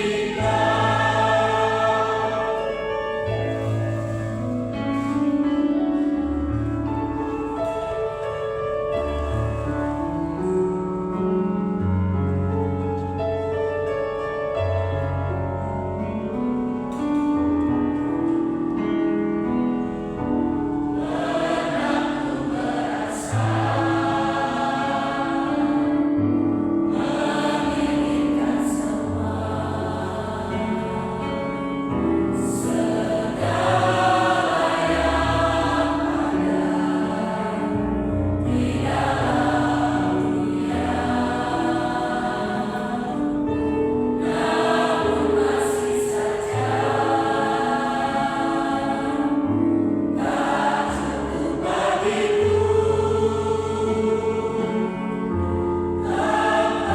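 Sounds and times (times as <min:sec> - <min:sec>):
choir singing gospel: 0:00.0 - 0:06.4, 0:19.8 - 0:56.9
sustained accompaniment: 0:00.0 - 0:08.1, 0:15.2 - 0:56.9.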